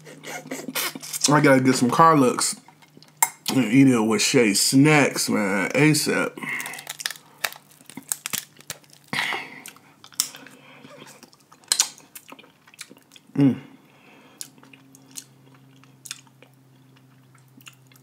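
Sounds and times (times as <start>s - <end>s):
close chewing with mouth smacks: 6.7s - 13.3s, 14.4s - 18.0s.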